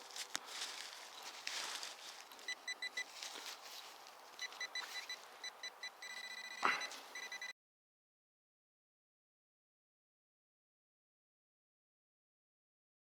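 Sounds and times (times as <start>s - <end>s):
metal detector beeping: 2.3s - 3.2s, 4.4s - 7.5s
metal detector long tone: 2.5s - 3.2s, 4.4s - 7.5s.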